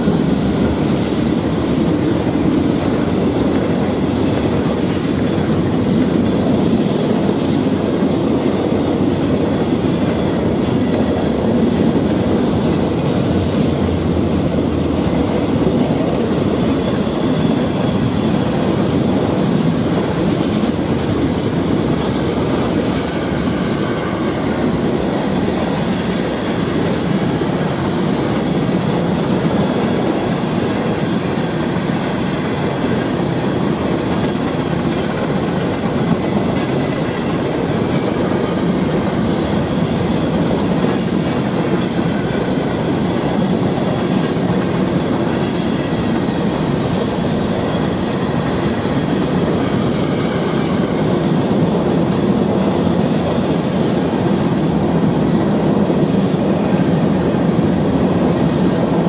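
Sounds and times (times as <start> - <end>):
steel train wheels on rails: 0.0 - 59.0.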